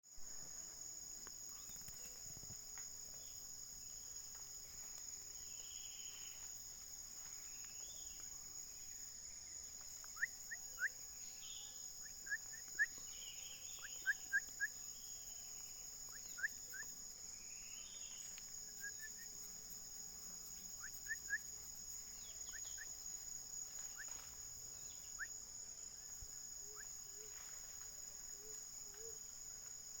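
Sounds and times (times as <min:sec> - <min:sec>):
whistled bird notes: 0:10.0 - 0:15.2.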